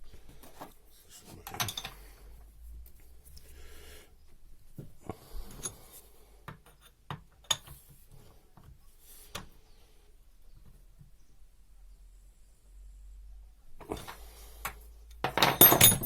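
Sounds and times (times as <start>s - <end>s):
metal parts clicking and tapping: 1.4s - 2.0s, 13.9s - 16.0s.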